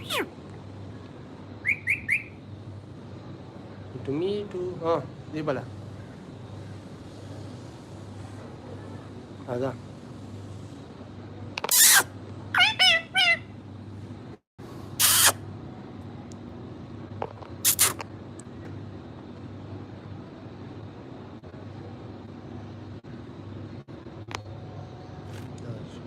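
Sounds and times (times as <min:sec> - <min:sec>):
parakeet shrill calls: 0:00.0 - 0:00.3, 0:01.6 - 0:02.4, 0:11.7 - 0:13.5.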